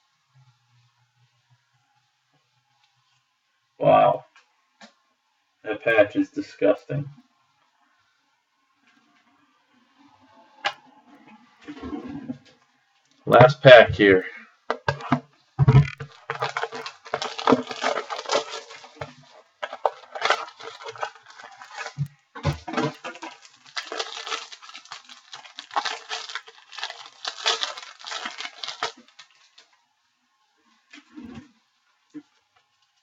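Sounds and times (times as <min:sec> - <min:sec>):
wrapper crinkling and crackling: 0:10.6 - 0:30.2.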